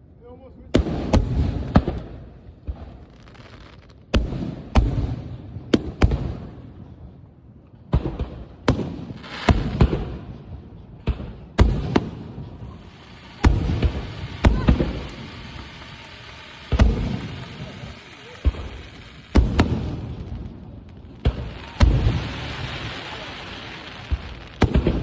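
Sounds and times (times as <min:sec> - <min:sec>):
firework hiss: 0:09.1 - 0:09.9, 0:11.6 - 0:25.0
firework shells booming: 0:11.0 - 0:25.0.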